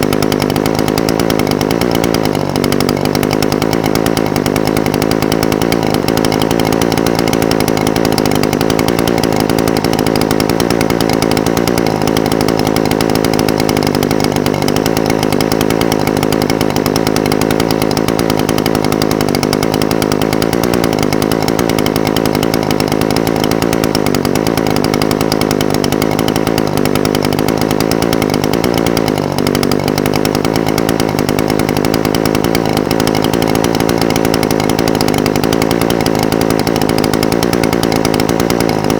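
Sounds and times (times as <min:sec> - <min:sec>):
brush cutter engine idling: 0:00.0 - 0:38.9.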